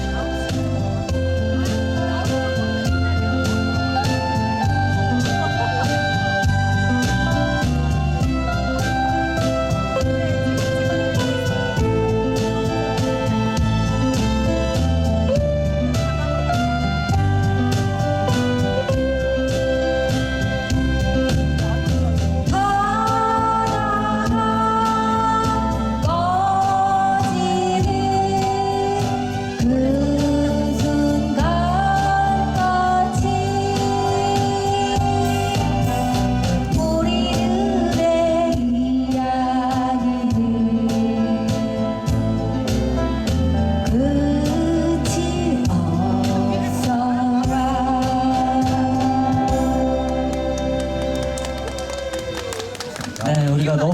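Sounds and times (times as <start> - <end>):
acoustic guitar: 0.0 - 53.9
backing accompaniment: 0.0 - 53.9
person singing long notes: 22.5 - 42.7, 43.8 - 51.1.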